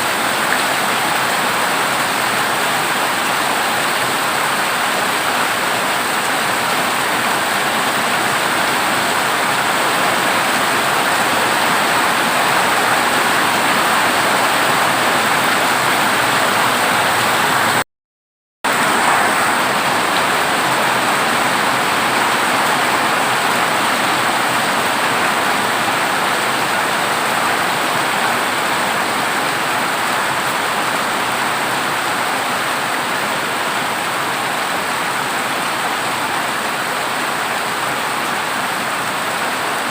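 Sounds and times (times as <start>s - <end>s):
heavy rain on a metal roof: 0.0s - 17.8s, 18.6s - 39.9s.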